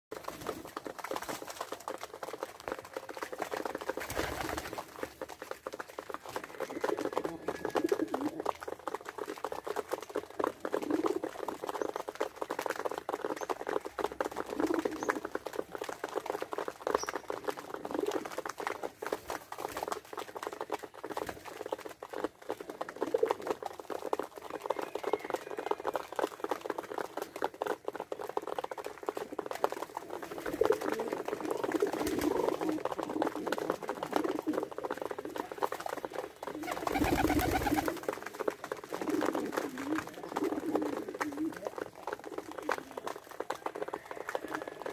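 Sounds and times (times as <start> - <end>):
pigeons cooing: 6.4 - 8.6, 14.4 - 15.3, 30.2 - 38.0, 38.8 - 43.0
pattering clicks and scratches: 24.8 - 44.9.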